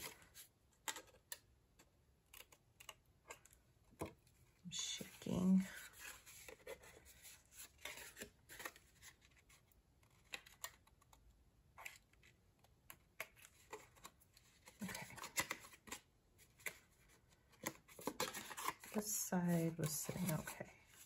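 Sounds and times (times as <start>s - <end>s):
cardstock clicks and rustles: 11.8s - 19.0s, 19.8s - 21.0s.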